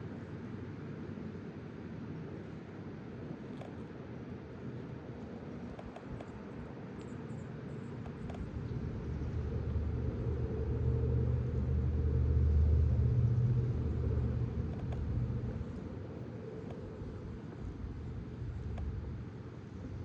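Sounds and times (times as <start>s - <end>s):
low rumble: 8.6s - 19.1s.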